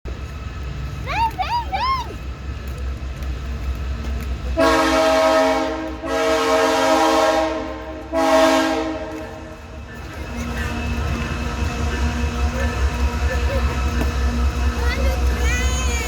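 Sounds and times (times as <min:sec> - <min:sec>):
train rumbling: 0:00.0 - 0:16.0
locomotive air horn blasts: 0:04.6 - 0:09.6.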